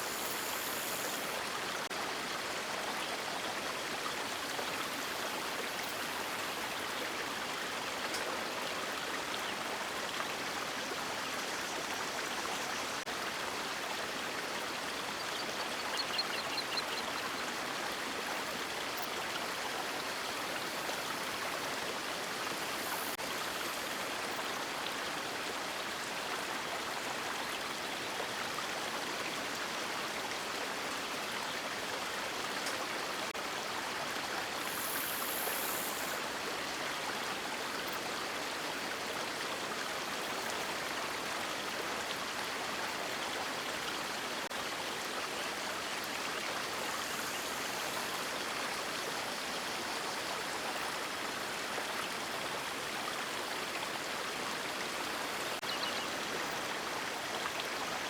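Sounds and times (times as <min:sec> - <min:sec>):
faint high hiss: 0:00.0 - 0:01.9, 0:18.9 - 0:24.4, 0:34.2 - 0:36.7, 0:45.7 - 0:50.9.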